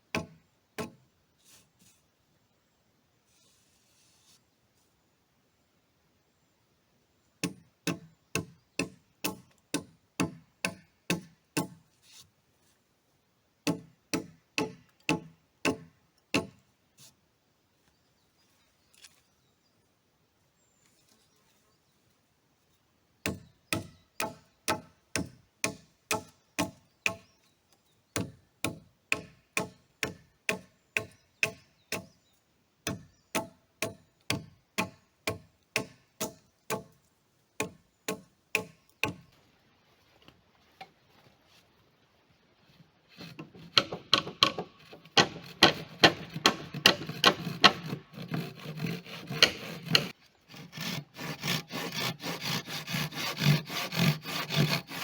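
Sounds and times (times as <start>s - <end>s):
hammer driving nail into timber: 43.4s - 48.0s, 49.3s - 50.1s.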